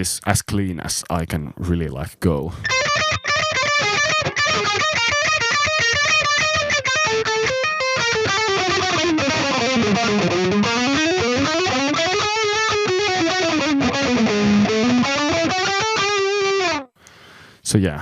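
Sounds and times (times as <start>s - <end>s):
distorted electric guitar runs: 2.7s - 16.8s.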